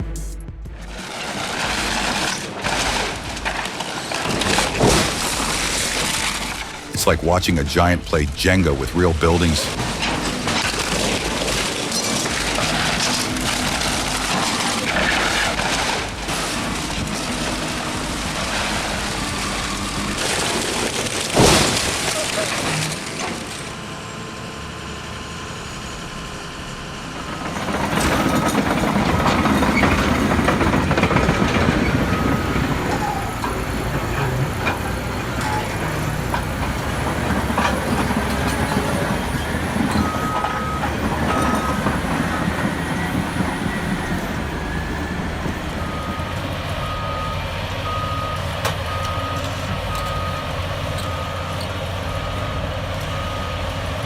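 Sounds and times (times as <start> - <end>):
engine and machinery noise: 0.0 - 54.0
reversing alarm beeping: 28.0 - 54.0.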